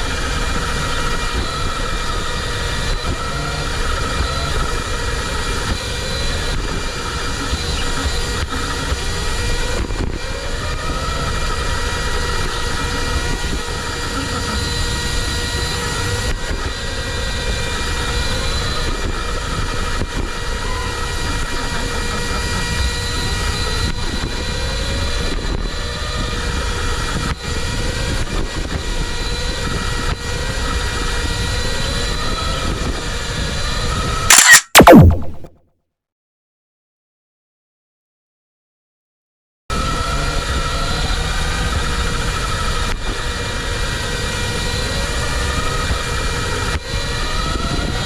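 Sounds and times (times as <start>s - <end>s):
electronic hum: 34.3s - 35.5s.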